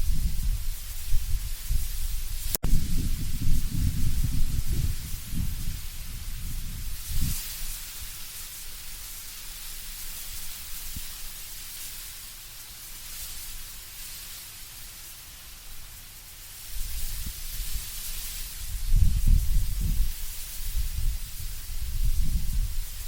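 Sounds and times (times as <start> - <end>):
low rumble of gusting wind: 0.0 - 11.3, 16.6 - 23.0
wind rustling leaves: 0.0 - 23.0.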